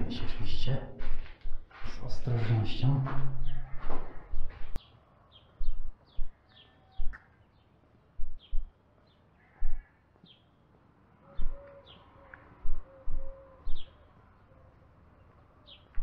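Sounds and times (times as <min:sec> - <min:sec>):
small birds chirping: 0:00.0 - 0:16.0
loud dull low thumps: 0:08.2 - 0:08.7
dove cooing: 0:11.3 - 0:14.0.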